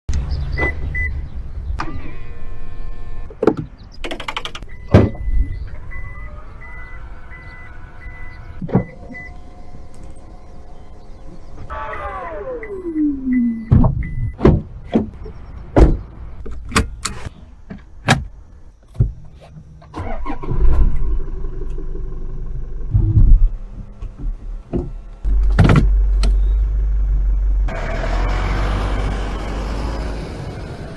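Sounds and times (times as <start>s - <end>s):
diesel engine rumbling: 0.1s - 30.9s
sharp clicks and knocks: 3.4s - 5.2s.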